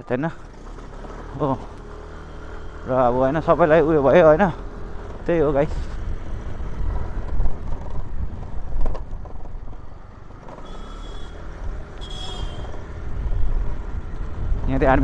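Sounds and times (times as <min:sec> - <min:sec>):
road rumble: 0:00.0 - 0:15.0
wind on microphone: 0:05.9 - 0:09.7.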